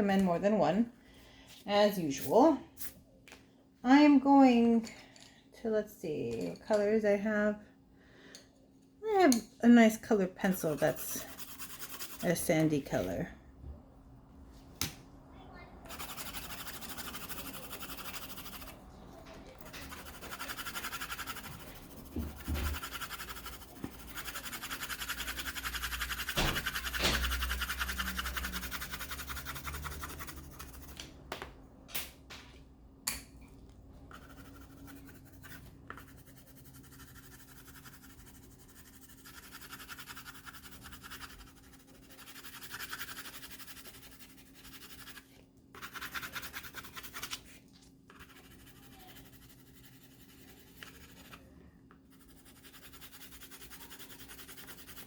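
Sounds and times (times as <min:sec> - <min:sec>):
colored pencil scribbling on paper: 0:10.5 - 0:13.1, 0:15.9 - 0:18.8, 0:19.6 - 0:31.0, 0:34.1 - 0:47.5, 0:48.1 - 0:51.5, 0:52.1 - 0:55.0.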